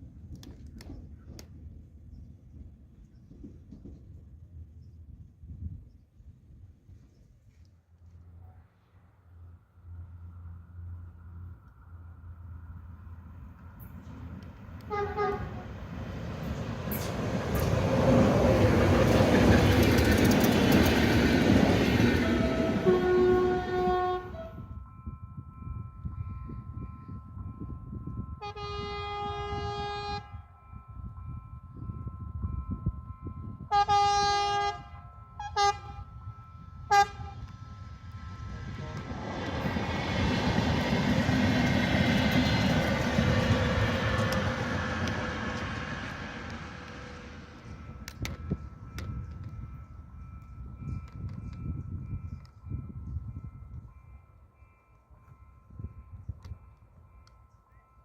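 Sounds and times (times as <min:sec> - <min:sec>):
passenger train rumbling past: 0:08.1 - 0:58.0
train horn: 0:14.8 - 0:15.8, 0:22.1 - 0:24.8, 0:28.4 - 0:30.5, 0:33.7 - 0:36.2, 0:36.8 - 0:37.5
train wheels clickety-clack: 0:16.4 - 0:22.9, 0:38.9 - 0:53.2.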